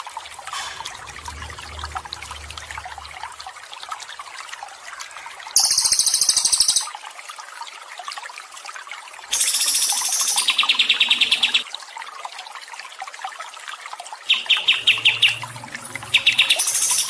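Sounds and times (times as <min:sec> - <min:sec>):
water trickling: 0:00.0 - 0:17.0
songbird trills: 0:14.3 - 0:17.0.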